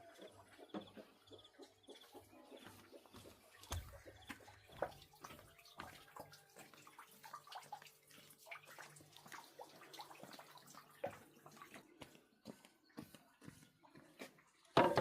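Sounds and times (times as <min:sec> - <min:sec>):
water splashing and dripping: 0:02.6 - 0:13.1.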